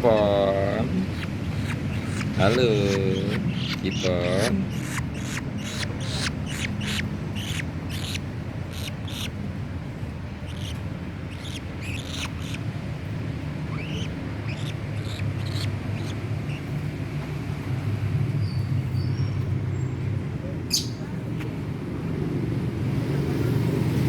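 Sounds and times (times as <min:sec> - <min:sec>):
bird chirping: 0:00.0 - 0:09.4, 0:10.4 - 0:12.8, 0:13.6 - 0:16.8, 0:18.4 - 0:20.0
low background hum: 0:00.0 - 0:24.0.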